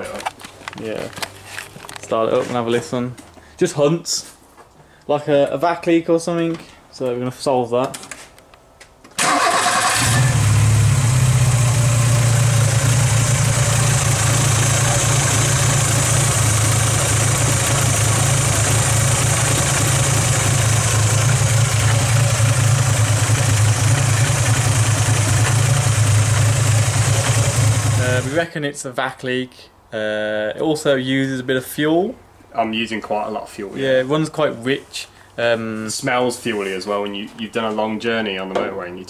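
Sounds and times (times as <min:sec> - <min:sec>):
car engine cranking: 0:09.2 - 0:28.3
car engine idling: 0:09.2 - 0:28.4.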